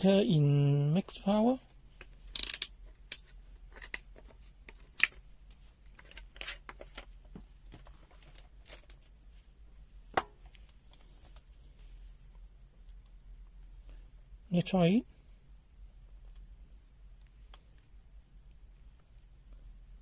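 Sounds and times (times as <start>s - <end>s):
small clicks and rustles: 1.3s - 9.5s, 10.4s - 13.2s.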